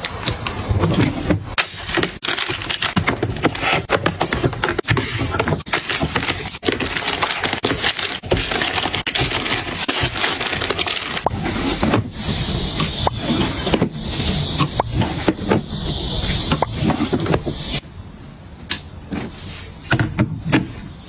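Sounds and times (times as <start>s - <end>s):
plastic packaging crinkling: 1.6s - 13.0s.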